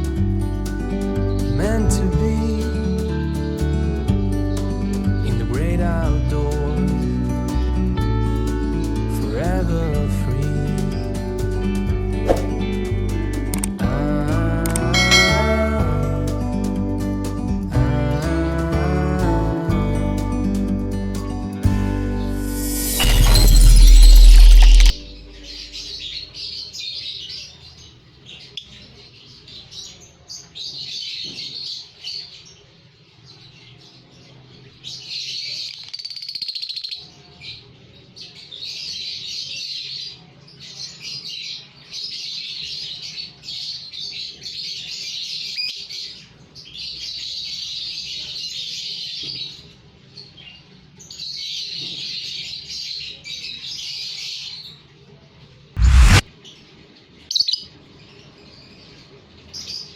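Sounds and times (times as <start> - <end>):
sharp click: 13.5 - 13.8, 14.7 - 15.2, 22.4 - 25.0, 55.8 - 56.2.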